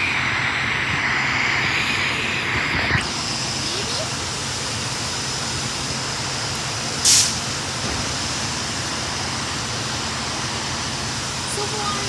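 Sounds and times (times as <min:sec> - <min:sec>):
air hiss burst: 0:00.0 - 0:03.2, 0:07.0 - 0:08.2
electric train rumble and hiss: 0:00.0 - 0:12.0.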